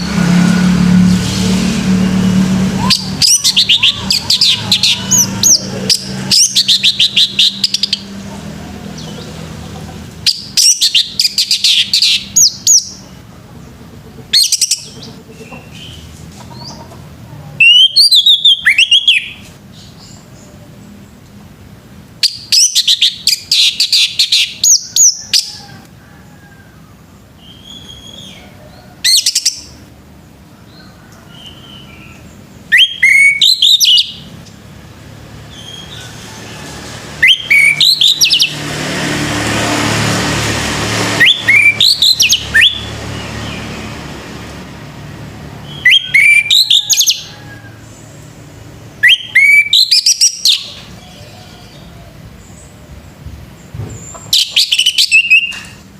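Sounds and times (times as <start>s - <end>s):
thrush singing: 0.0s - 13.4s, 35.0s - 52.8s.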